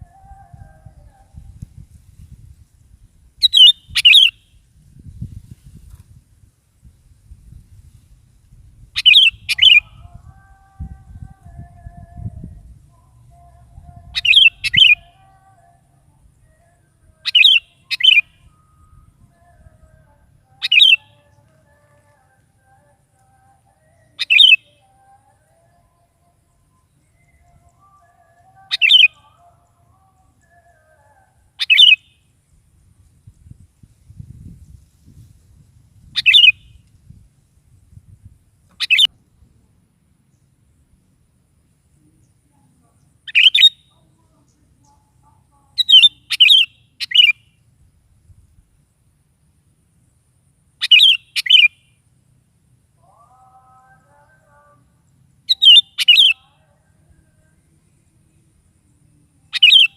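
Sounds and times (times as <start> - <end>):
bulbul chattering calls: 3.4 - 4.4, 9.0 - 9.9, 14.2 - 15.0, 17.2 - 18.2, 20.6 - 21.1, 24.1 - 24.7, 28.5 - 29.3, 31.6 - 32.0, 36.2 - 36.6, 38.7 - 39.1, 43.2 - 43.8, 45.8 - 47.4, 50.8 - 51.8, 55.5 - 56.5, 59.5 - 59.9
bulbul singing bubbly phrases: 3.4 - 4.4, 9.0 - 32.2, 36.2 - 36.7, 42.2 - 47.4, 50.8 - 51.7, 53.0 - 59.9
faint whistled bird notes: 22.8 - 29.6.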